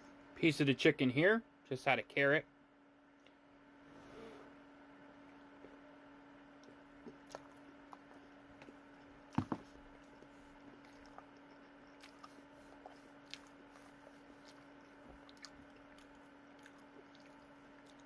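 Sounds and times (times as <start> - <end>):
chewing food: 6.5 - 18.0
wet mouth clicks: 6.6 - 8.2.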